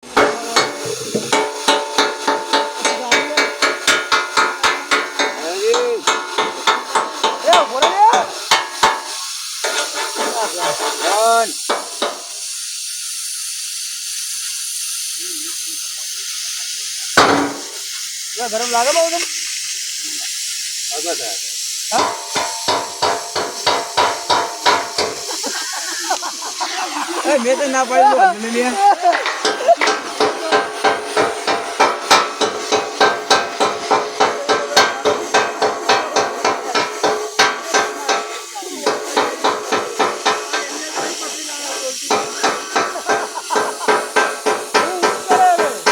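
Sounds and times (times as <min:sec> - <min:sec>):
hammer striking metal: 0:00.0 - 0:11.0, 0:11.7 - 0:12.4, 0:17.2 - 0:17.8, 0:21.9 - 0:25.3, 0:29.1 - 0:41.1, 0:42.1 - 0:45.9
metal ringing: 0:00.0 - 0:11.0, 0:17.2 - 0:17.8, 0:21.9 - 0:25.4, 0:28.9 - 0:45.9
welding arc crackling hiss: 0:00.0 - 0:45.9.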